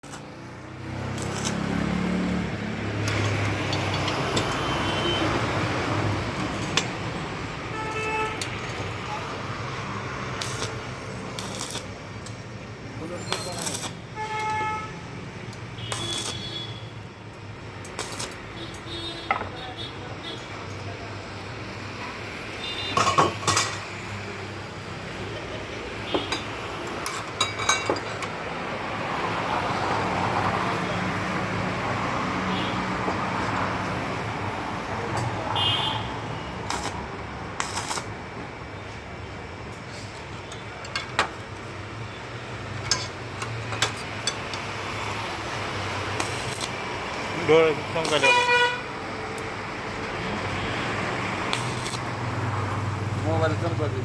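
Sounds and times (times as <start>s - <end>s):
road noise: 0.0s - 54.0s
metal pieces knocking and clinking: 42.8s - 44.6s.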